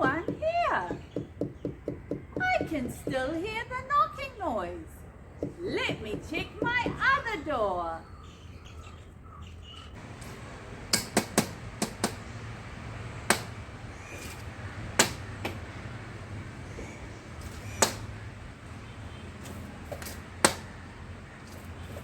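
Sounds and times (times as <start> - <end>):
woodpecker knocking on glass: 0.0 - 3.4, 10.0 - 12.5, 13.3 - 18.2.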